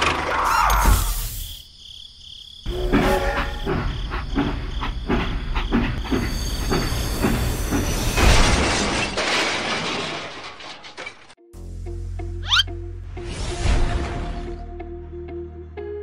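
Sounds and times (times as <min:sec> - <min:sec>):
toy train crashing: 0:07.8 - 0:11.4.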